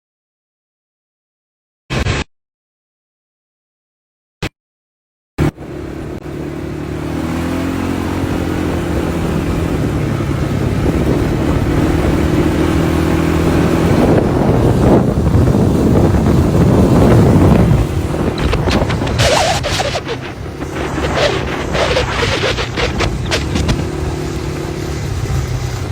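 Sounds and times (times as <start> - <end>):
dirt bike engine running: 5.4 - 25.9.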